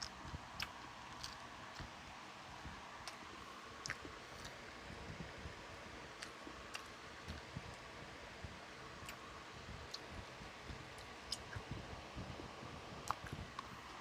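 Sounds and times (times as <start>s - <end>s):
chewing clicks and smacks: 0.0s - 2.0s, 3.0s - 3.2s, 3.8s - 4.6s, 6.2s - 7.8s, 11.0s - 11.7s, 13.0s - 13.7s.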